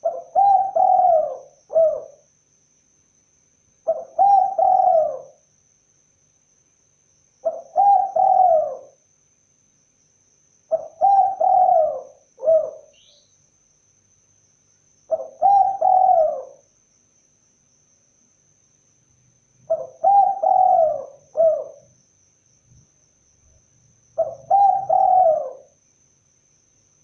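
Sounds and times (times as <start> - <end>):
dove cooing: 0.0 - 2.2, 3.9 - 5.4, 7.4 - 9.0, 10.7 - 13.1, 15.1 - 16.6, 19.7 - 21.9, 24.2 - 25.8.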